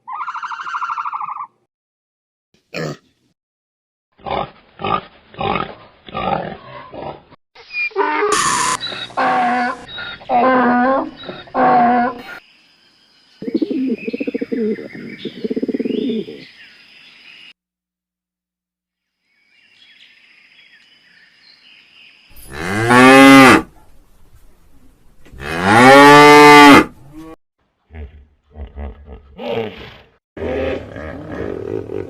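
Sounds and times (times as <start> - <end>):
birds chirping faintly: 9.8 - 17.6
cow mooing: 22.5 - 23.7, 25.4 - 27.4.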